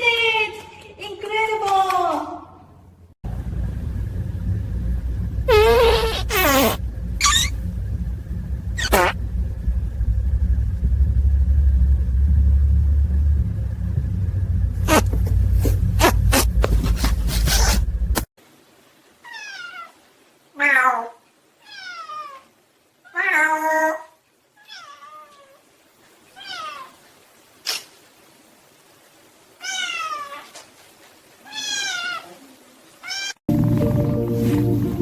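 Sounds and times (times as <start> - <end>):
loud low rumble with clicks: 3.2 - 18.3
cat meowing: 19.2 - 20.0, 20.6 - 22.5, 24.6 - 25.6, 26.4 - 27.0, 29.6 - 30.6, 31.4 - 33.4.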